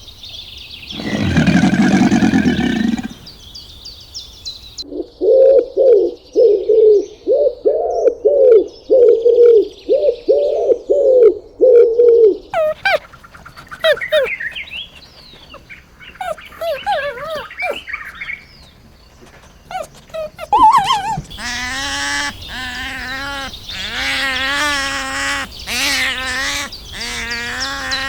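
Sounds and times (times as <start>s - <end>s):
birds chirping: 0.9s - 4.8s, 12.6s - 28.0s
loud harsh animal calls: 1.0s - 3.4s, 12.6s - 28.0s.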